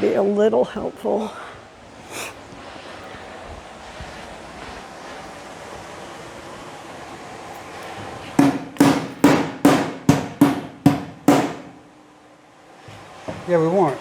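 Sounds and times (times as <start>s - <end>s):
hammer striking metal: 8.4s - 11.8s.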